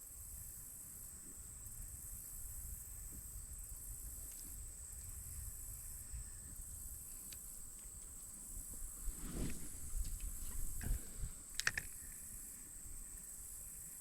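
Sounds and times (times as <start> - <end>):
high-pitched insect chorus: 0.0 - 14.0
light clicks: 10.0 - 12.2.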